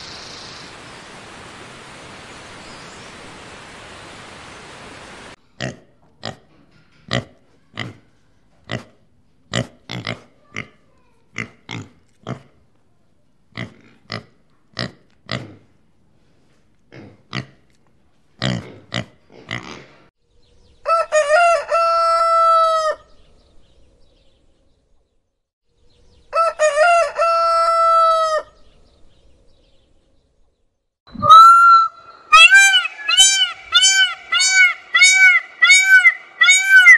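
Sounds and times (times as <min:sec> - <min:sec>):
animal grunts: 0:08.7 - 0:10.8, 0:11.4 - 0:12.6, 0:13.6 - 0:15.7, 0:16.9 - 0:17.6, 0:18.4 - 0:20.1
rooster crowing: 0:20.8 - 0:23.0, 0:26.3 - 0:28.6, 0:31.2 - 0:36.9.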